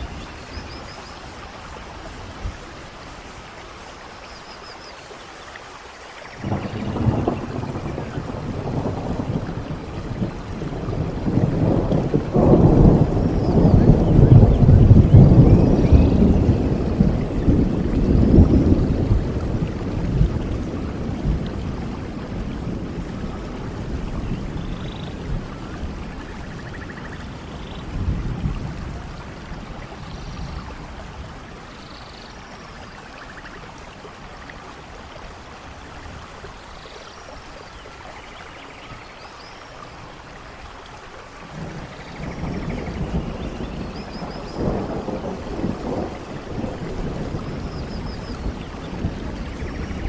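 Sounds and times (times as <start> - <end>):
steady rain: 0.0 - 50.0
rolling thunder: 6.4 - 31.8, 41.4 - 50.0.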